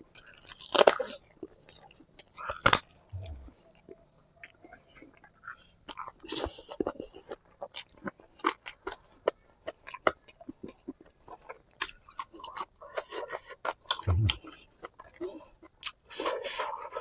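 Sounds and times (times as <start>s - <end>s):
wet chewing and mouth smacks: 2.2s - 3.5s.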